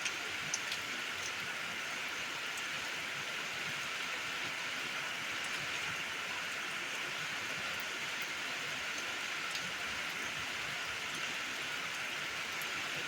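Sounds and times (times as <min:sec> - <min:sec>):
raindrops ticking: 0:00.0 - 0:01.4, 0:08.9 - 0:09.7
steady rain hiss: 0:00.0 - 0:13.0.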